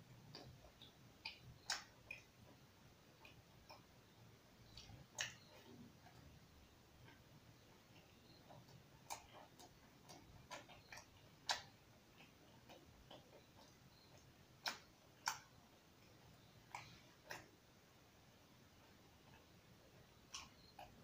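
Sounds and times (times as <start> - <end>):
soft chewing with lip smacks: 0.0 - 21.0.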